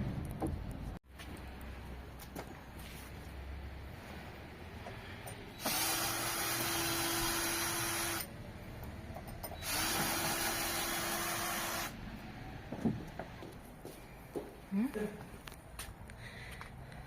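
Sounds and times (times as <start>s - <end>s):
power drill running: 5.6s - 8.3s, 9.6s - 12.0s.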